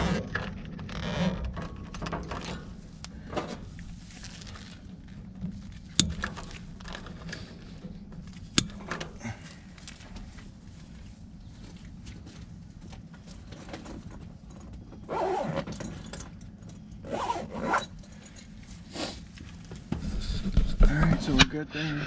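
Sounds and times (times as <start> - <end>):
rustling of wiring and tape: 0.0 - 16.4.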